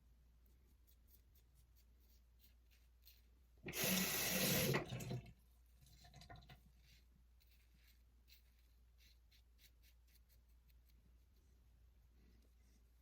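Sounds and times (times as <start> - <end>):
sink tap running: 3.6 - 5.3.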